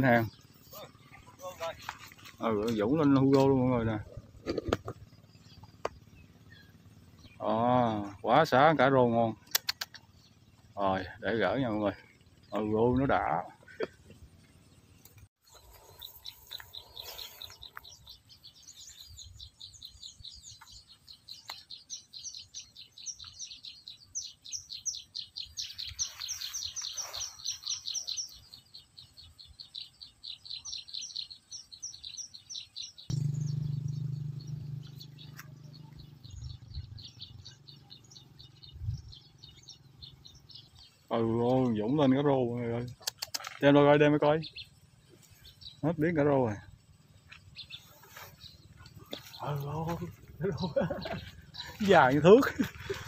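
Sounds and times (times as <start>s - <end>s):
small birds chirping: 0.0s - 53.0s
low steady hum: 33.1s - 41.0s.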